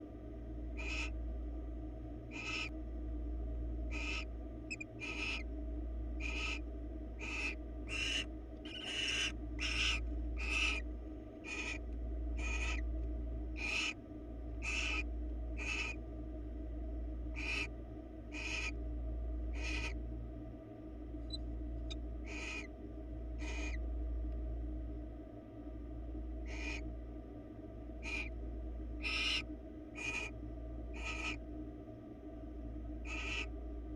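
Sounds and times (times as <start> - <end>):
low electrical hum: 0.0 - 33.9
owls screeching: 0.8 - 1.1, 2.3 - 2.7, 3.9 - 5.5, 6.2 - 6.6, 7.2 - 10.8, 11.4 - 11.8, 12.4 - 12.8, 13.6 - 14.0, 14.6 - 16.0, 17.4 - 17.7, 18.3 - 18.8, 19.5 - 20.0, 21.3 - 22.7, 23.4 - 23.8, 26.4 - 26.8, 28.0 - 28.4, 29.0 - 30.3, 30.9 - 31.4, 33.0 - 33.5.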